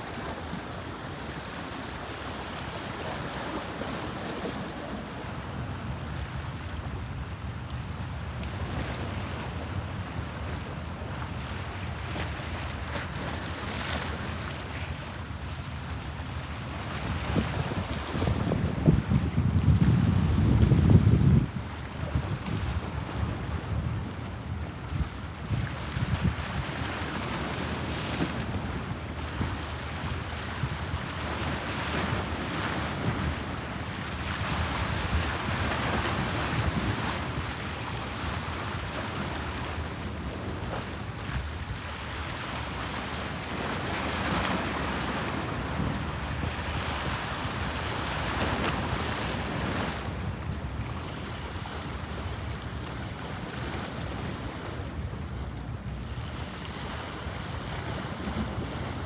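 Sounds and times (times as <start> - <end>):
wind buffeting microphone: 16.8 - 42.0.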